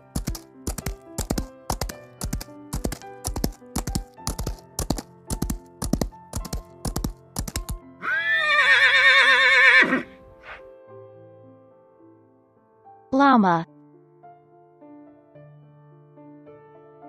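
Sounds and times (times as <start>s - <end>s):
horse hooves clip-clopping: 0.0s - 7.8s
soft background music: 0.0s - 17.0s
horse whinnying: 8.0s - 10.6s.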